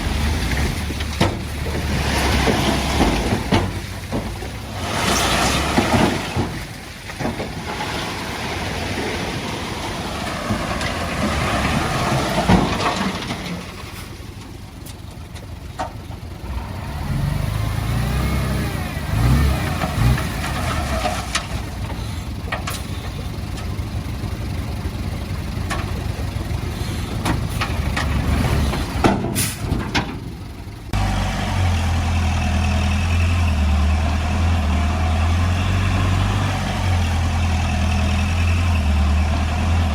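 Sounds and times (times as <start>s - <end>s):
sharp knocks and clanks: 0.0s - 8.0s, 10.4s - 13.9s, 25.1s - 30.4s
diesel earthmoving machinery working: 0.0s - 39.9s.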